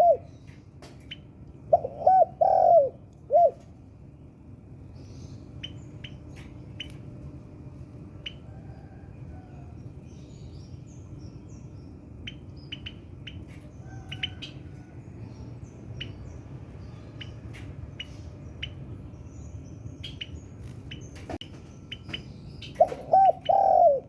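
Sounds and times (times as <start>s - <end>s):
dove cooing: 0.0s - 0.3s, 1.7s - 3.7s, 22.7s - 24.0s
steady low hum: 0.0s - 24.0s
bird chirps: 10.1s - 24.0s.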